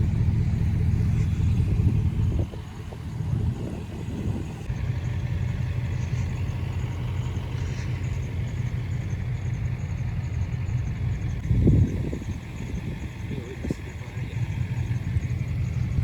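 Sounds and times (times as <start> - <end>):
pickup truck engine running: 0.0 - 16.0.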